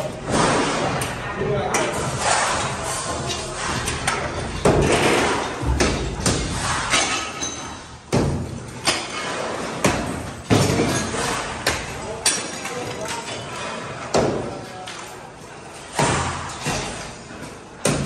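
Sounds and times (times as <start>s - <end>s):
heavy demolition thuds and knocks: 2.0s - 12.0s.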